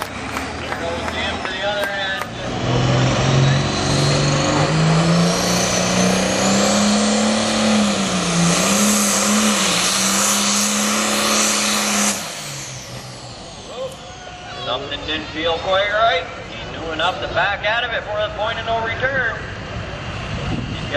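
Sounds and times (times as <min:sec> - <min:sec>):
tractor engine at full throttle: 0:00.0 - 0:20.9
high whine: 0:03.1 - 0:17.4.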